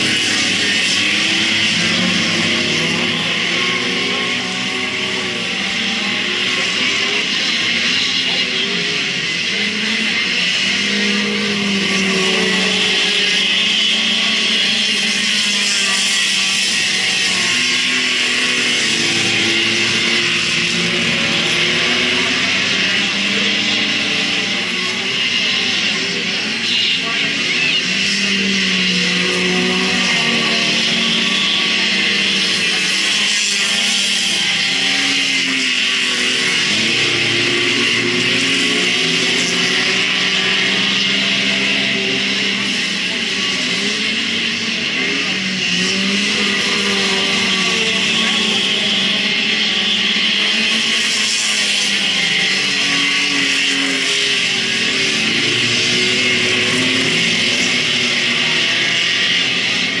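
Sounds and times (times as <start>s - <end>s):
race car engines droning: 0.0s - 60.0s.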